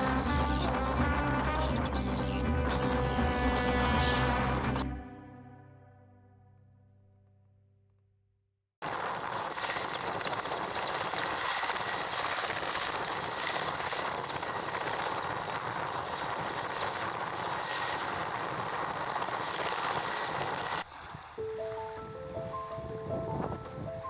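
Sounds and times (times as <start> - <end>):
music: 0.0 - 7.6, 21.4 - 24.0
helicopter rotor noise: 8.8 - 20.9
helicopter turbine whine: 8.8 - 23.4.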